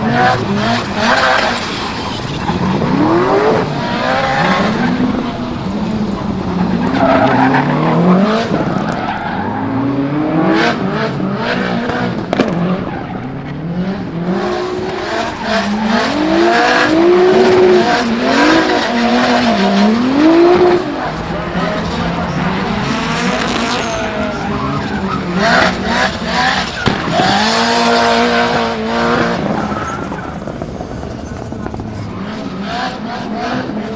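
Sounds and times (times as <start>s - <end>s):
car engine revving: 0.0s - 33.9s
tyre squeal: 21.0s - 28.2s, 29.2s - 33.2s.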